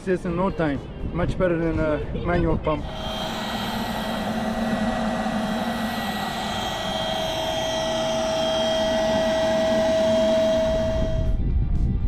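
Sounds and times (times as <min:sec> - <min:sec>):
electric pump motor whine: 0:02.8 - 0:11.9.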